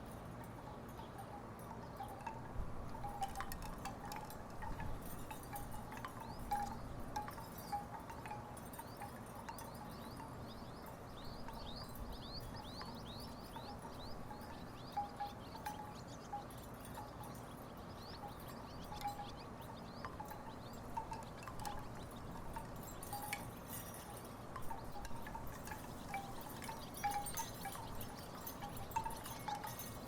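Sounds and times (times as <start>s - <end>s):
wooden wind chimes knocking: 2.1s - 9.9s, 20.0s - 30.0s.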